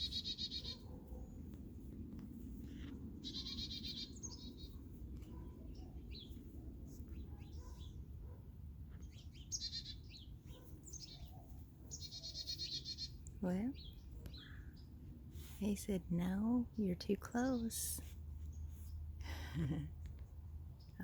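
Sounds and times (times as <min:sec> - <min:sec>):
chickadees calling: 0:00.0 - 0:01.4, 0:03.2 - 0:06.4, 0:09.0 - 0:14.6.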